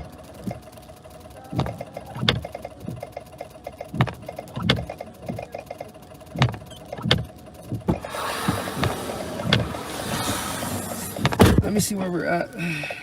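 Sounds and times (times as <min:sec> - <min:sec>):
low vehicle hum: 0:00.0 - 0:13.0
windshield wipers knocking: 0:01.5 - 0:03.2, 0:03.8 - 0:05.6, 0:06.3 - 0:11.8
road or fan noise hiss: 0:08.0 - 0:13.0.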